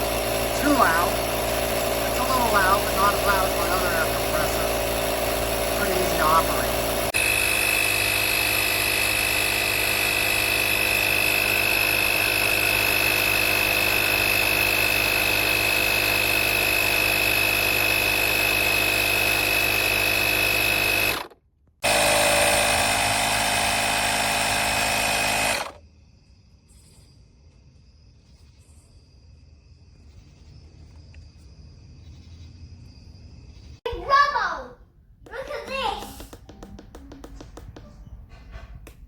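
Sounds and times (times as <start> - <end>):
air compressor whining: 0.0 - 25.8.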